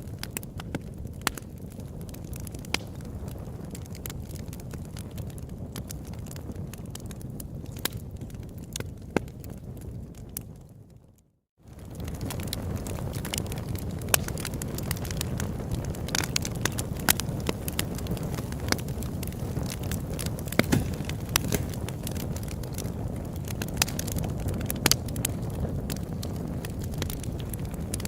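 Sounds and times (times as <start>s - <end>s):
campfire flames rushing: 0.0s - 11.0s, 11.6s - 28.0s
fire crackling and popping: 0.0s - 28.0s.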